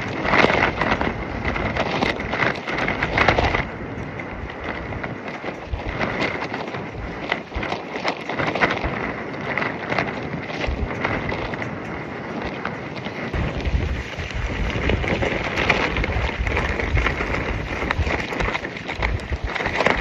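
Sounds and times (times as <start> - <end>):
fabric flapping in wind: 0.0 - 20.0
wind buffeting microphone: 0.0 - 20.0.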